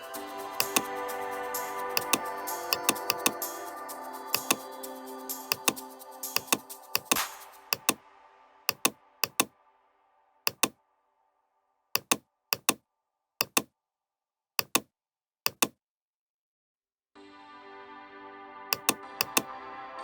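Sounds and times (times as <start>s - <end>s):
background music: 0.0s - 12.1s, 17.2s - 20.0s
computer mouse clicks: 0.6s - 0.9s, 2.0s - 3.5s, 4.3s - 4.7s, 5.5s - 5.8s, 6.4s - 8.0s, 8.7s - 9.5s, 10.5s - 10.8s, 12.0s - 12.8s, 13.4s - 13.7s, 14.6s - 14.9s, 15.5s - 15.8s, 18.8s - 19.5s.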